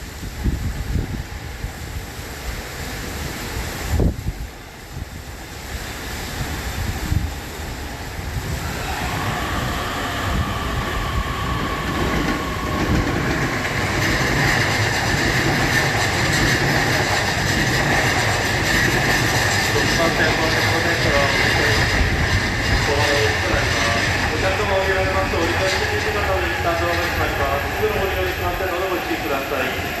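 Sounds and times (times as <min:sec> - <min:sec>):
electric train moving: 0:05.4 - 0:30.0
train motor whine: 0:08.5 - 0:28.4
train wheel clatter: 0:08.7 - 0:29.9.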